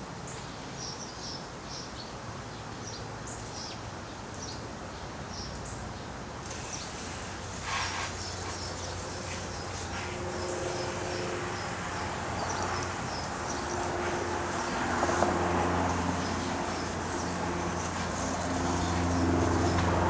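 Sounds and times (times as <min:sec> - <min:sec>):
low engine hum: 0:08.2 - 0:20.0.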